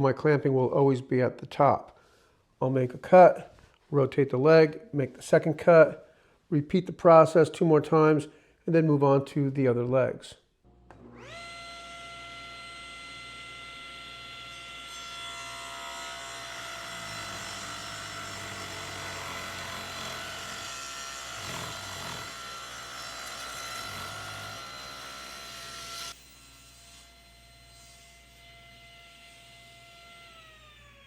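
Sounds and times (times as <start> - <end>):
table saw cutting wood: 10.9 - 31.0.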